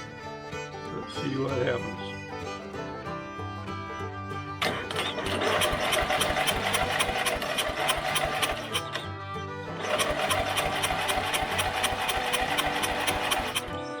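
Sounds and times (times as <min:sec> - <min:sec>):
bluegrass background music: 0:00.0 - 0:14.0
engine starter cranking: 0:04.6 - 0:09.1, 0:09.7 - 0:14.0.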